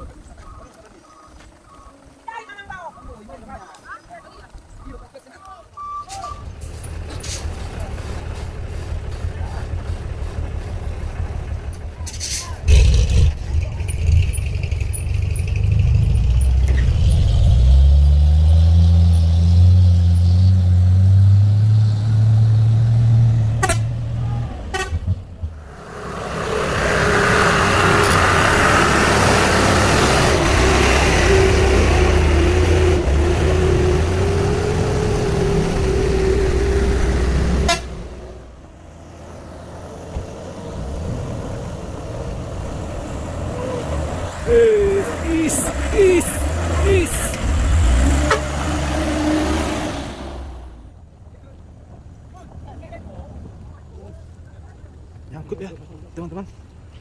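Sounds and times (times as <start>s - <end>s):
heavy vehicle engine labouring: 5.7s - 51.1s
long horn blast: 23.5s - 25.2s, 37.4s - 38.4s, 48.0s - 49.9s.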